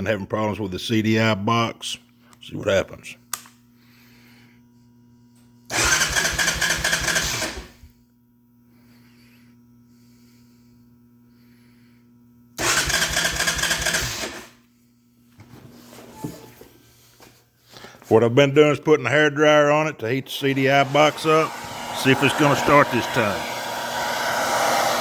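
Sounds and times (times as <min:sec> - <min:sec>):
engine cranking without starting: 0:05.7 - 0:07.8, 0:12.6 - 0:14.6.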